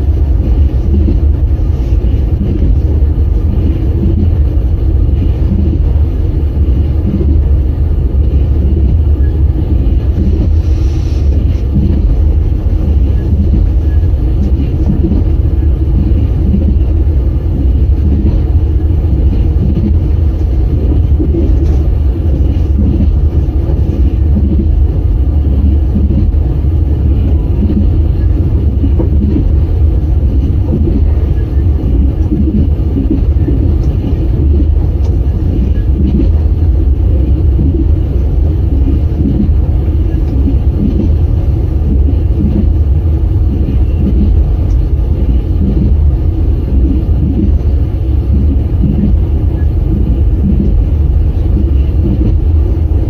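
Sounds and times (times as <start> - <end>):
train wheels rumbling on rails: 0.0 - 53.0
rhythmic knock: 28.7 - 36.7, 40.2 - 42.8.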